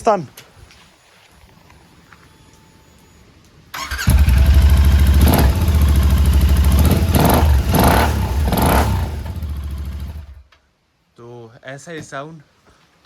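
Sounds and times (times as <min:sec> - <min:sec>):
motorcycle engine revving: 0:03.8 - 0:10.4.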